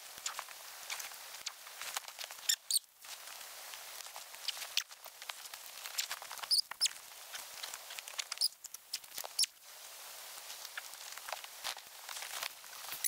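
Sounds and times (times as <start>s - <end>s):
small sharp clicks and scrapes: 4.4s - 9.5s.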